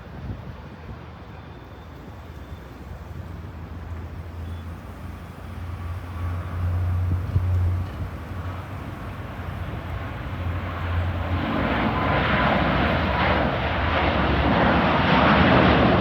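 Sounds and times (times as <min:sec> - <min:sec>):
low jet rumble: 0:00.0 - 0:16.0.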